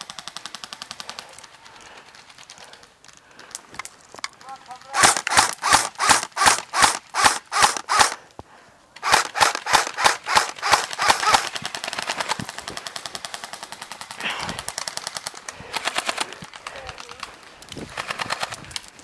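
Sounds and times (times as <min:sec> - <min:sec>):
airsoft rifle firing: 0:04.8 - 0:08.2, 0:09.0 - 0:16.4.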